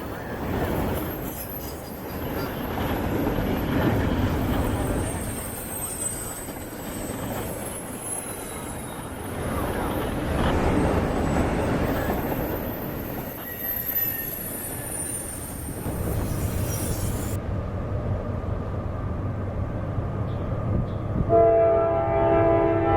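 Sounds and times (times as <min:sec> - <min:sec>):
train wheels squealing on rail: 0:00.0 - 0:17.4
freight train rumbling: 0:00.0 - 0:22.9.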